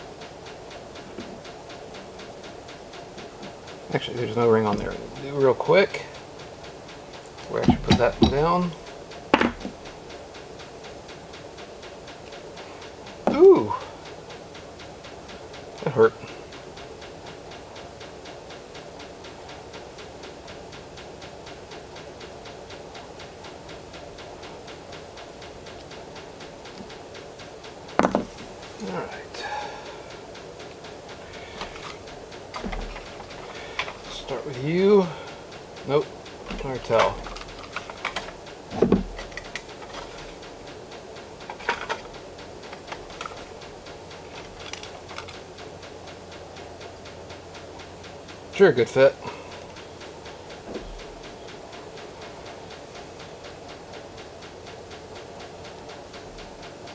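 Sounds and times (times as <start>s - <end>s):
rapid mechanical ticking: 0.0s - 56.9s
steady low hum: 0.0s - 56.9s
small metal parts clicking and tapping: 3.4s - 6.3s, 6.9s - 10.1s, 27.6s - 29.6s, 30.6s - 45.4s
low bump: 7.4s - 10.0s.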